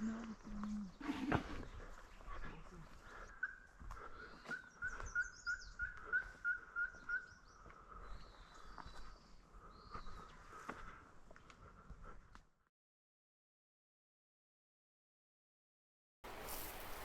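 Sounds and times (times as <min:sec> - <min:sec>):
bird calling repeated notes: 0:04.4 - 0:07.6
high bird chirps: 0:04.4 - 0:09.2.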